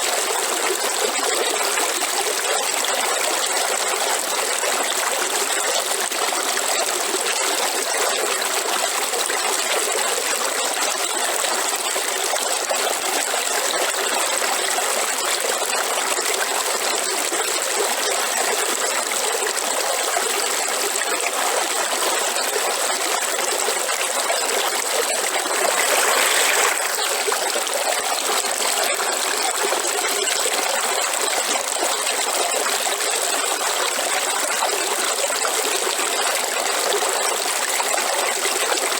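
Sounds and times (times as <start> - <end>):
river water flowing: 19.4 - 38.9.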